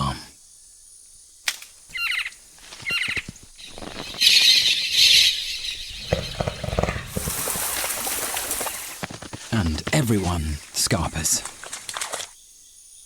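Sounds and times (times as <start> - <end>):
bird shrill alarm calls: 1.9 - 9.0
animals rustling and crashing: 2.4 - 12.4.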